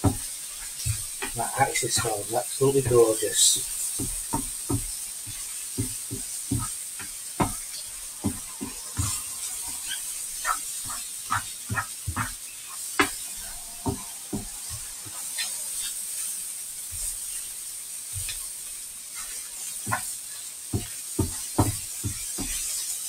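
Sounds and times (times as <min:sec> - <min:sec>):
utensil knocking and scraping pan: 0:00.0 - 0:12.4
food sizzling in a frying pan: 0:00.0 - 0:23.0.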